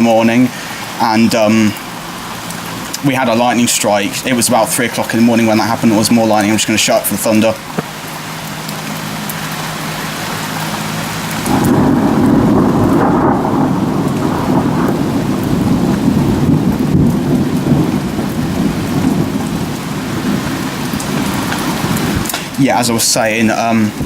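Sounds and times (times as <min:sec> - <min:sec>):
heavy rain pouring: 0:00.0 - 0:24.0
rolling thunder rumble: 0:11.4 - 0:24.0.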